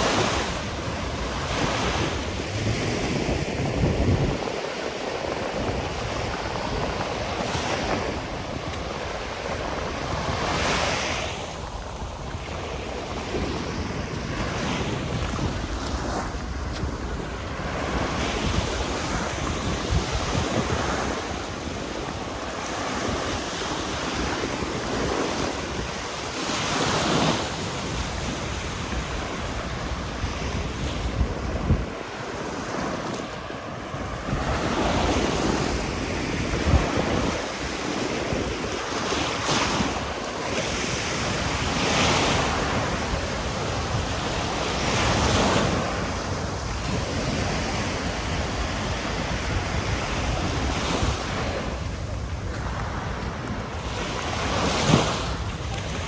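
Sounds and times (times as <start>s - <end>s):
waves breaking on beach: 0.0s - 56.0s
wind on microphone: 0.0s - 56.0s.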